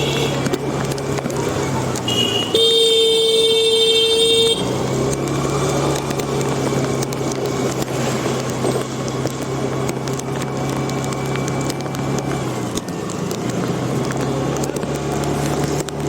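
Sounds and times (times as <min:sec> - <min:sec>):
vehicle horn: 0:00.0 - 0:00.5, 0:02.0 - 0:04.8
traffic on a wet street: 0:00.0 - 0:16.0.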